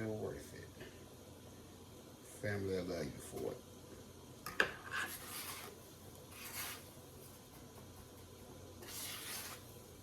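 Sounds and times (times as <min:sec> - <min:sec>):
food rubbed in dry breadcrumbs: 0:05.1 - 0:08.2, 0:08.8 - 0:09.8.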